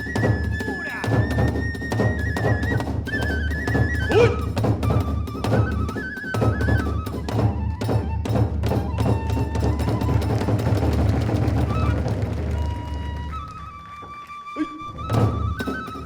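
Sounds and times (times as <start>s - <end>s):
bamboo flute melody: 0.0s - 16.0s
rapid drum strokes: 9.6s - 12.9s.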